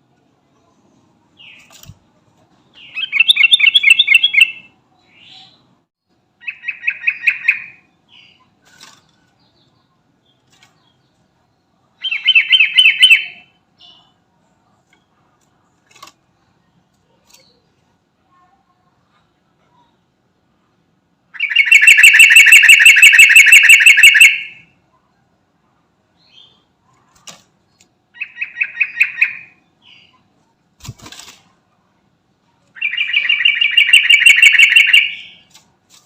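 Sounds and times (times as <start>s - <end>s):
bulbul singing rapid notes: 21.4s - 24.6s, 32.8s - 35.3s.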